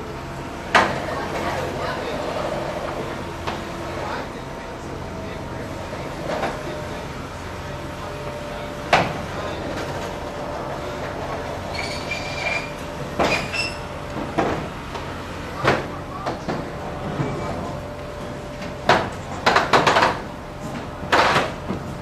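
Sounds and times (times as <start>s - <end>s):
low background hum: 0.0s - 22.0s
short high squeaks: 11.6s - 13.9s.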